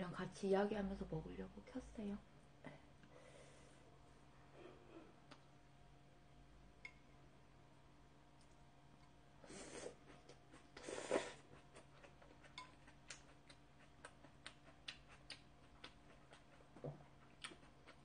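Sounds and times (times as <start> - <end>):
faint chewing: 8.4 - 18.0
small mouth clicks: 12.5 - 16.4.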